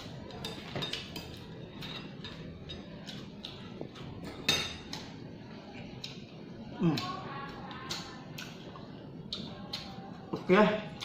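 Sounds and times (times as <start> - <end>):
metal utensils clinking against bowl: 0.0 - 3.3, 4.2 - 5.0.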